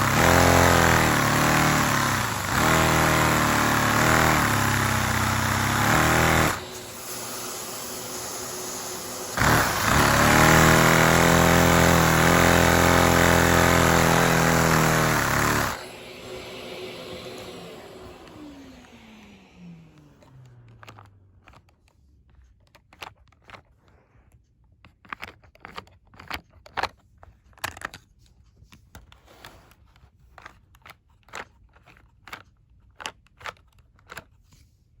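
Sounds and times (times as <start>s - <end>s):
engine winding down: 0.0s - 21.4s.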